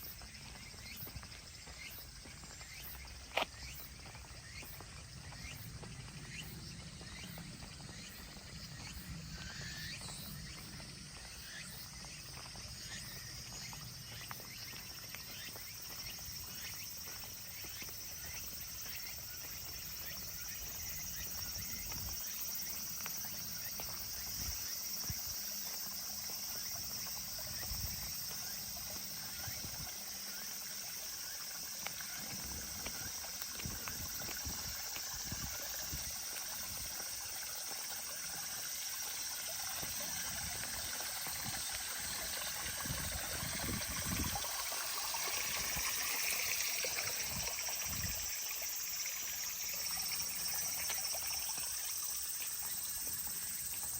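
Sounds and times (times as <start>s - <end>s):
stream water trickling and splashing: 0.0s - 53.9s
water drips and plinks: 11.9s - 53.9s.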